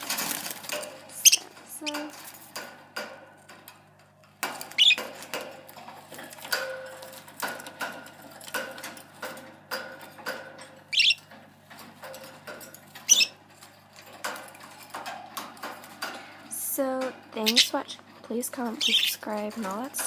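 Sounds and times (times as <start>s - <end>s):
budgies chirping: 0.0s - 2.4s, 4.5s - 5.7s, 6.4s - 13.4s, 14.2s - 20.0s
loud high bird calls: 4.7s - 5.2s, 10.9s - 11.3s, 13.0s - 13.4s, 17.4s - 18.0s, 18.8s - 19.2s.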